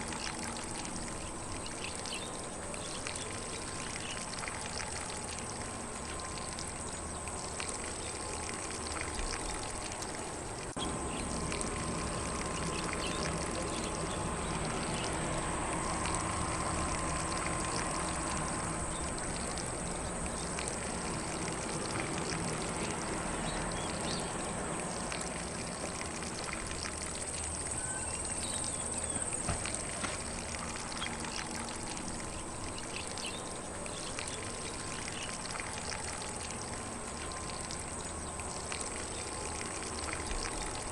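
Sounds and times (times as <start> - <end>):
lawn sprinkler spraying water: 0.0 - 40.9.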